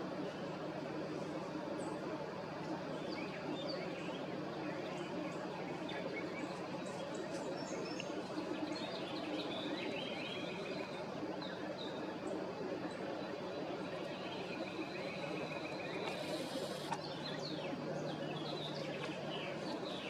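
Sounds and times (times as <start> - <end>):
steady background hiss: 0.0 - 20.0
small birds chirping: 13.6 - 20.0.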